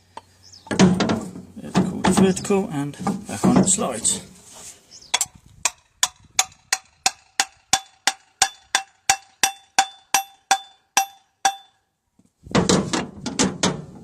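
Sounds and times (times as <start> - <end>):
hammer tapping steel: 5.2 - 11.8.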